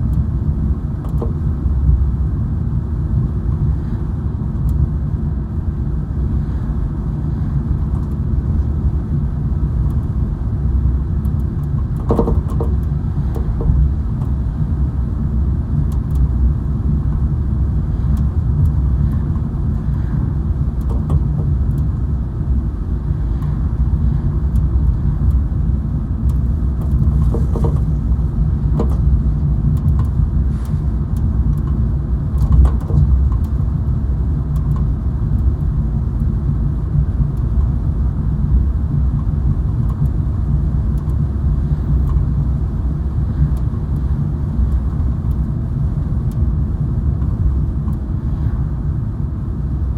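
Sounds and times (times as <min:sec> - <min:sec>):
car driving low rumble: 0:00.0 - 0:49.9
faint clicks and rattles: 0:20.8 - 0:22.0.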